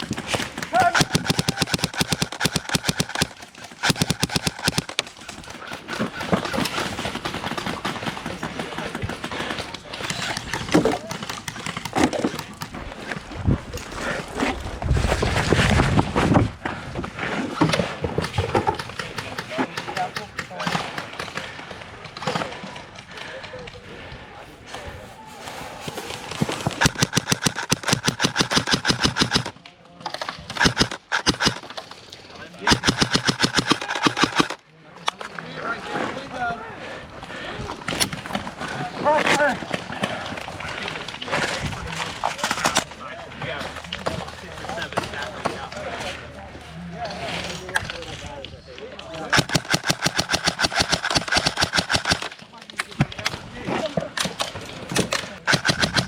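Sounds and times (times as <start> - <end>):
airsoft rifles firing bursts: 0.0 - 12.8, 26.7 - 29.6, 30.4 - 31.8, 32.6 - 34.6, 49.3 - 52.4, 55.4 - 56.0
field noise: 0.0 - 56.0.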